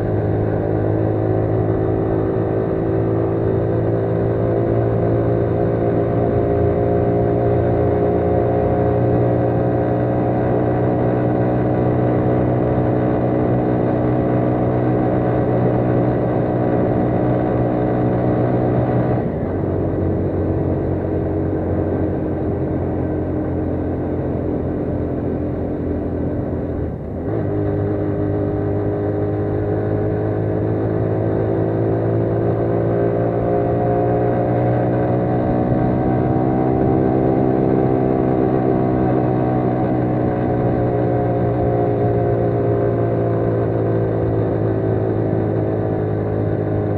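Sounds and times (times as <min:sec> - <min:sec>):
motorcycle engine climbing hill: 0:00.0 - 0:46.9.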